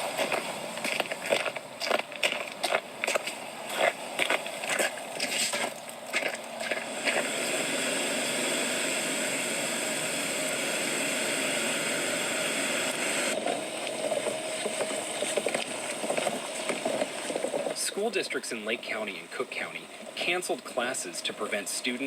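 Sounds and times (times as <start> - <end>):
steady rushing hiss: 0.0 - 22.0
irregular crunching: 0.1 - 7.8, 13.3 - 17.8.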